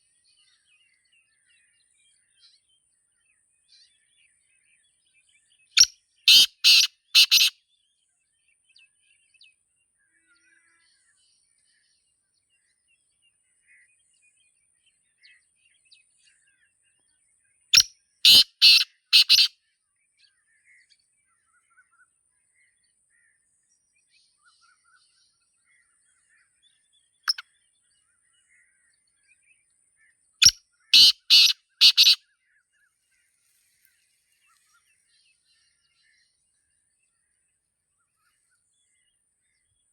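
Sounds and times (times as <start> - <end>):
bird calling harsh grating notes: 6.3 - 7.5, 18.3 - 19.5, 31.0 - 32.2.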